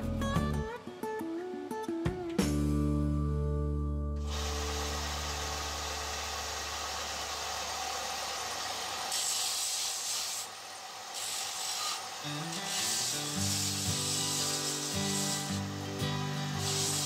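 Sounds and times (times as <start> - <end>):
guitar music low notes: 0.0 - 6.5, 12.2 - 17.0
sandpaper rubbing on wood: 9.1 - 10.5, 11.1 - 15.7, 16.4 - 17.0.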